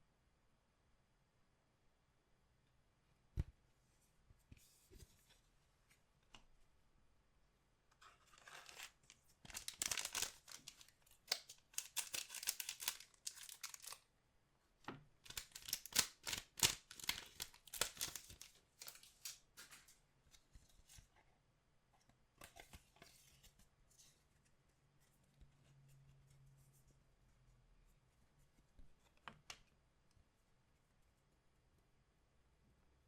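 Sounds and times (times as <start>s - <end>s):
foil wrappers tearing and crumpling: 8.4s - 14.0s, 15.2s - 19.7s.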